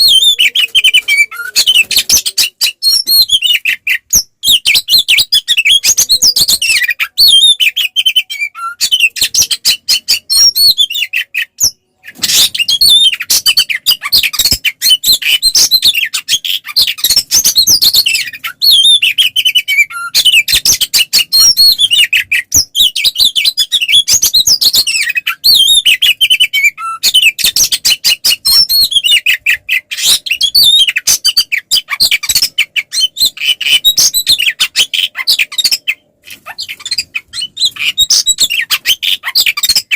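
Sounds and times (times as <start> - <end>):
songbird whistling and warbling: 0.0 - 39.9.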